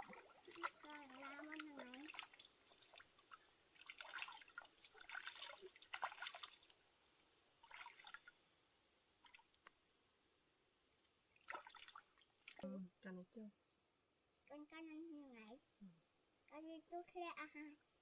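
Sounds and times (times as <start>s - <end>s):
water trickling and splashing: 0.0s - 9.9s, 10.6s - 12.8s.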